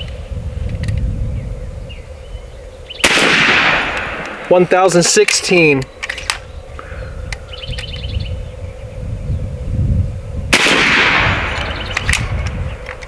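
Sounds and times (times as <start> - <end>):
air rifle shot: 3.0 - 6.3, 10.5 - 12.8.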